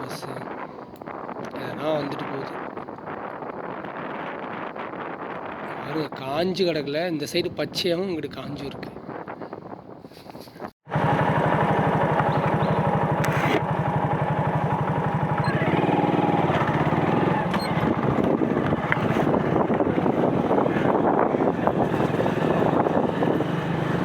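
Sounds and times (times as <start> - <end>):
motorcycle engine running: 10.9 - 24.0.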